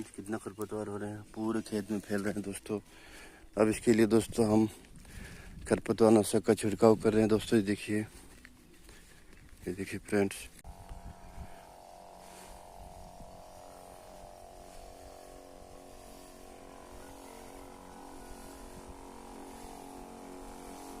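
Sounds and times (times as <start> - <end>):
electric pump motor humming: 10.6 - 21.0.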